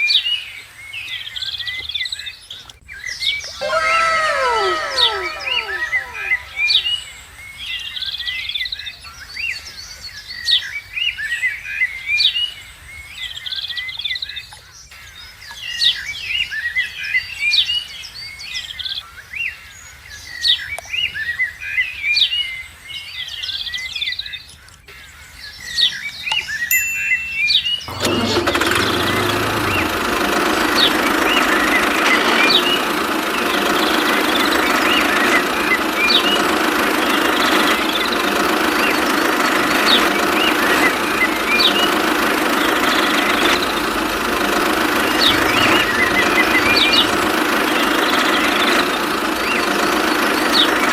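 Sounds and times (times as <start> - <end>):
small birds chirping: 0.0 - 7.2, 28.6 - 50.9
diesel water pump engine clattering: 27.9 - 50.9.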